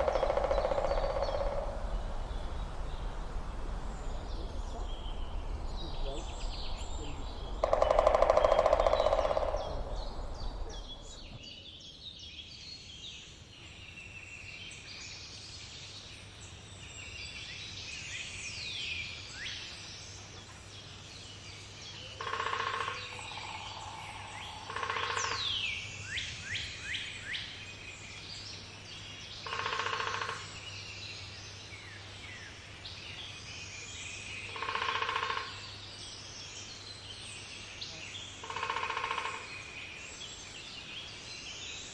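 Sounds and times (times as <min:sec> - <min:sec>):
woodpecker drumming: 0:00.0 - 0:02.7, 0:04.5 - 0:11.4, 0:22.2 - 0:25.7, 0:29.4 - 0:30.6, 0:34.5 - 0:35.7, 0:38.4 - 0:39.6
small birds chirping: 0:00.0 - 0:41.9.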